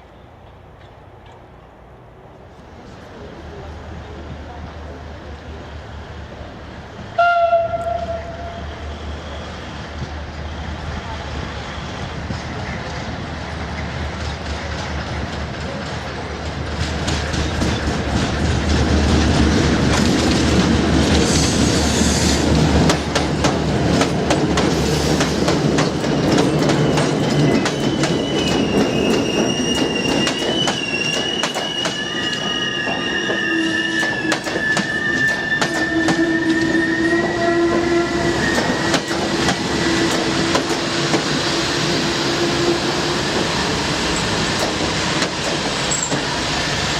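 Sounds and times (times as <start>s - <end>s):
train rumbling: 0.0s - 46.9s
wheels squealing from braking: 26.2s - 40.5s
wheels clicking over rail joints: 44.1s - 46.4s.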